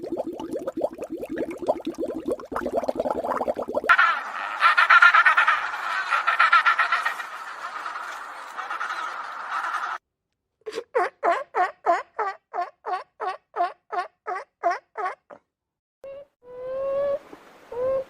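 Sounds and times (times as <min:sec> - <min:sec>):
clamour of animal calls: 0:03.9 - 0:10.0.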